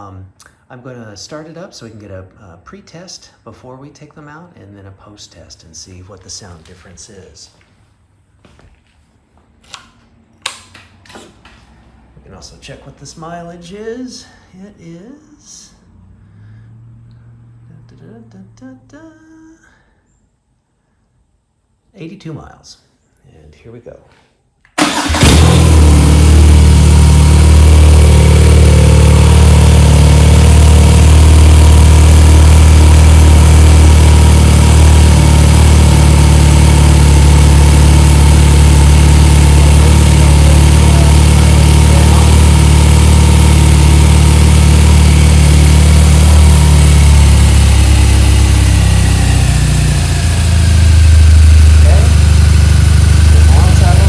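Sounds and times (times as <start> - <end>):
motorcycle engine idling: 24.9 - 54.0.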